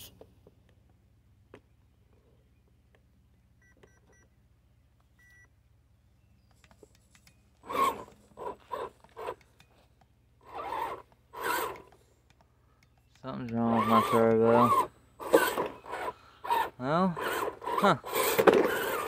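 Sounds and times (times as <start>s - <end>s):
faint electronic beeps: 5.2s - 5.6s
rc truck electronic bursts: 7.6s - 9.4s, 10.4s - 11.9s, 13.6s - 19.0s.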